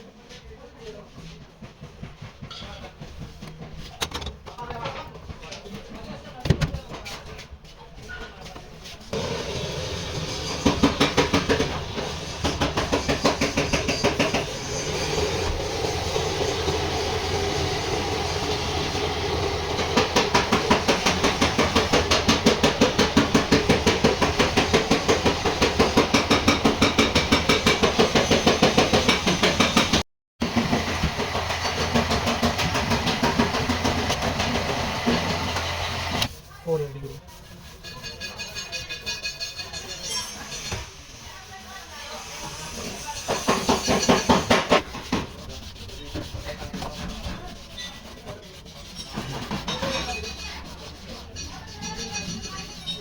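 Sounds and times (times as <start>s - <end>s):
rapid mechanical knocking: 10.7s - 36.3s.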